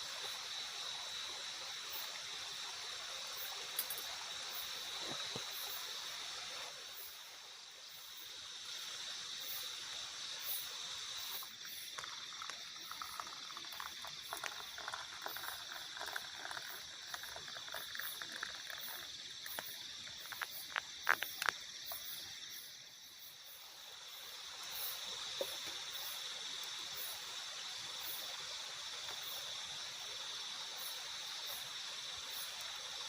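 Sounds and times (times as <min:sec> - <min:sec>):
forest insects chirring: 0:00.0 - 0:33.0
fast pulsing insect chirps: 0:07.9 - 0:28.6
crackles and sharp clicks: 0:12.0 - 0:22.1.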